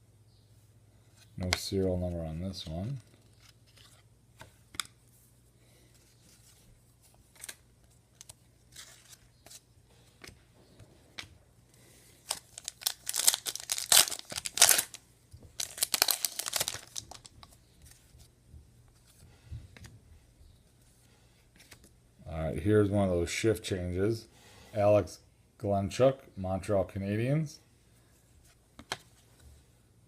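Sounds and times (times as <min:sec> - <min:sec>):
wrapping crinkling and tearing: 0:12.2 - 0:15.0, 0:15.6 - 0:17.5.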